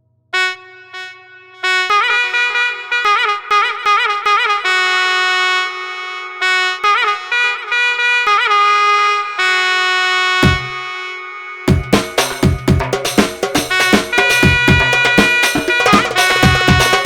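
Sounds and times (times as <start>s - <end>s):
drums: 10.4s - 10.8s, 11.7s - 17.0s.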